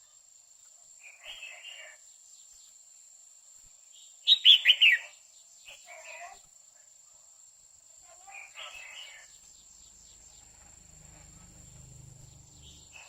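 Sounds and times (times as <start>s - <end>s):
faint high whine: 9.0s - 13.0s.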